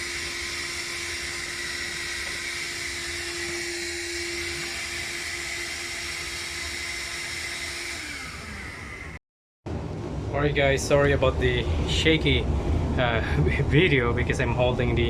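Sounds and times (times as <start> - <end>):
vacuum cleaner whining: 0.0 - 9.2.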